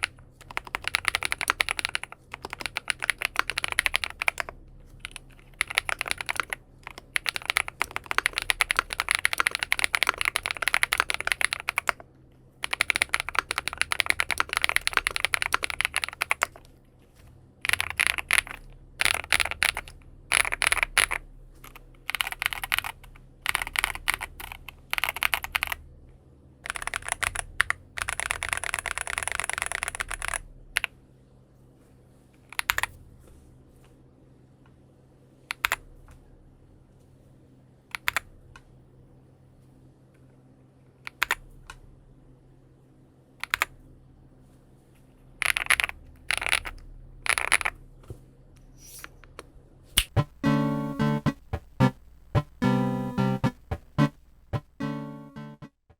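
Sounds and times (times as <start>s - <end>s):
mechanical keyboard typing: 0.0s - 12.0s, 12.6s - 16.5s, 17.7s - 21.2s, 22.1s - 25.8s, 26.7s - 30.4s.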